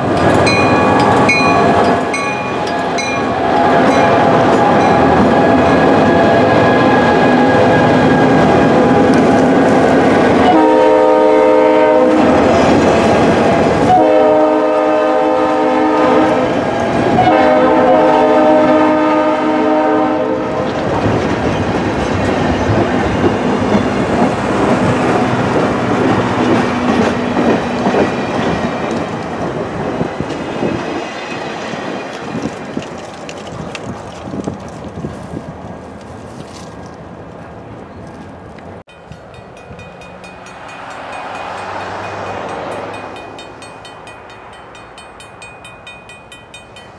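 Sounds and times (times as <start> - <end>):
train horn blasts: 10.4 - 12.7, 13.8 - 20.7
wheels clattering over rail joints: 20.6 - 35.4.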